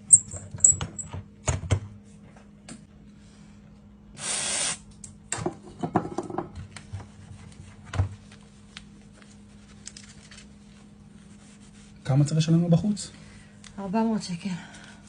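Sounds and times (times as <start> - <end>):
short hiss: 4.2 - 4.8
steady low hum: 4.8 - 15.0.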